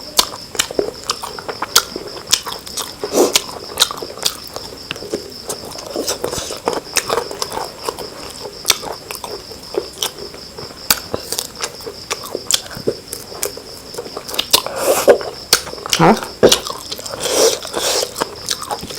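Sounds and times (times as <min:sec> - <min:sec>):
chewing and lip-smacking: 0:00.2 - 0:18.9.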